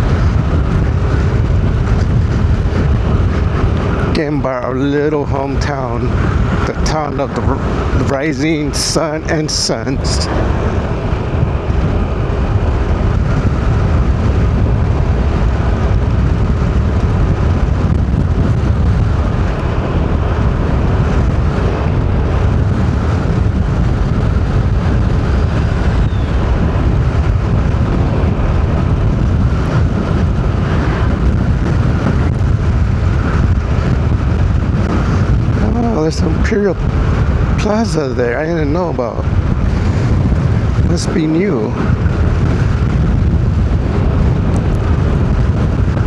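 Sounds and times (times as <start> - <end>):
car cabin rumble: 0.0 - 46.0.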